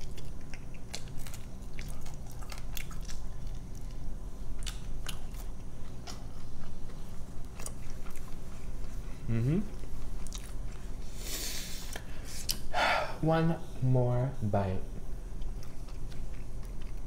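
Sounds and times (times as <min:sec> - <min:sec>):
chewing chicken wing: 0:00.0 - 0:11.1, 0:15.4 - 0:17.0.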